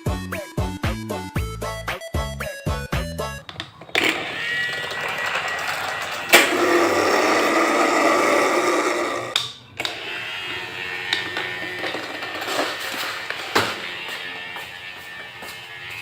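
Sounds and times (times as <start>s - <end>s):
small electric motor whirring: 3.8s - 16.0s.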